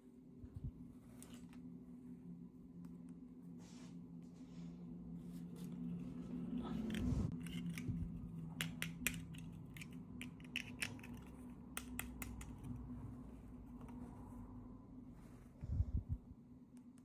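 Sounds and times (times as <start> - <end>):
low hum: 0.0 - 17.0
packaging clicking and snipping: 6.8 - 12.7.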